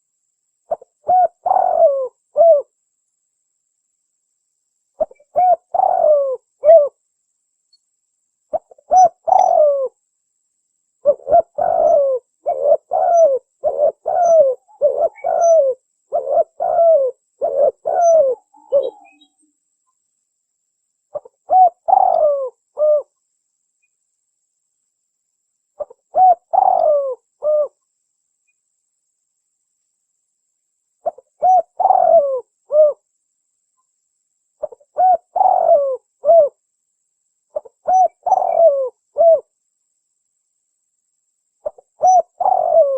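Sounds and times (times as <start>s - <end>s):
dove cooing: 0.7s - 2.7s, 5.0s - 7.0s, 8.5s - 10.0s, 11.0s - 19.3s, 21.1s - 23.1s, 25.8s - 27.8s, 31.0s - 33.0s, 34.6s - 36.6s, 37.5s - 39.5s, 41.6s - 42.9s.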